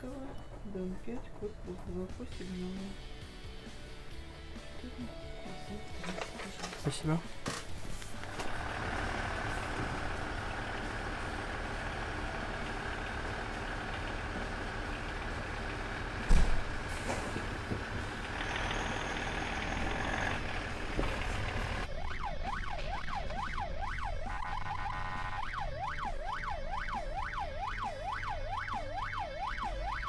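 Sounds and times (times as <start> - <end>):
fire truck engine running: 6.0 - 30.0
loud thump: 16.2 - 17.3
siren wailing: 17.0 - 30.0.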